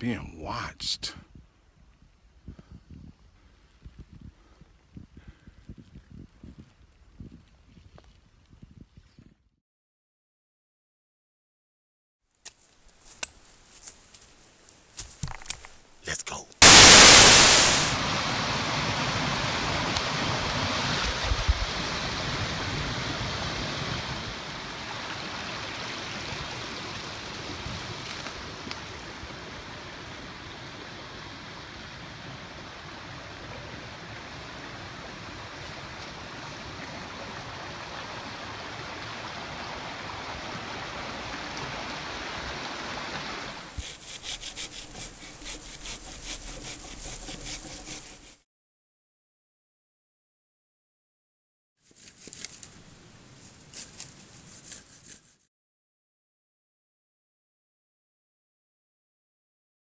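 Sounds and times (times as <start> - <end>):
creek rushing: 16.6 - 48.2
hand saw cutting branch: 43.6 - 48.4, 51.9 - 52.7, 53.7 - 55.5.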